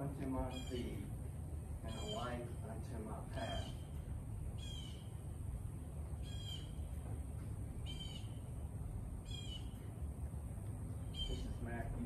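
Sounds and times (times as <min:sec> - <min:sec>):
steady low rumble: 0:00.0 - 0:12.0
bird giving harsh calls: 0:00.5 - 0:01.0, 0:01.8 - 0:02.4, 0:03.4 - 0:04.0, 0:04.6 - 0:05.2, 0:06.2 - 0:06.8, 0:07.8 - 0:08.4, 0:09.2 - 0:09.8, 0:11.0 - 0:11.5.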